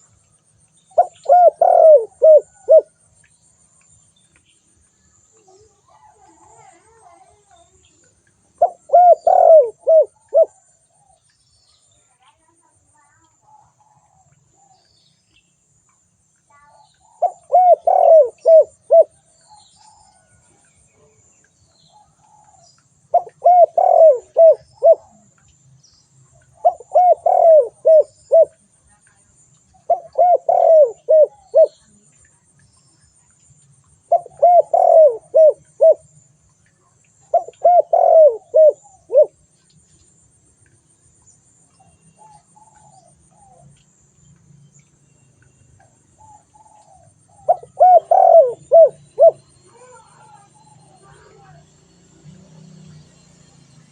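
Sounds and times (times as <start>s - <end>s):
dove cooing: 1.0s - 3.0s, 8.6s - 10.7s, 17.0s - 20.3s, 22.0s - 25.3s, 26.5s - 28.6s, 29.8s - 31.9s, 34.1s - 36.1s, 37.3s - 39.4s, 46.2s - 51.6s.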